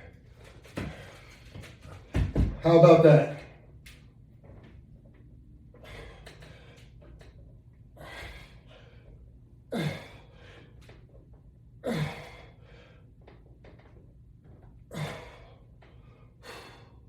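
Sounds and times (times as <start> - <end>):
man breathing hard: 5.7 - 7.2, 7.9 - 11.0, 11.8 - 13.2, 14.8 - 17.0.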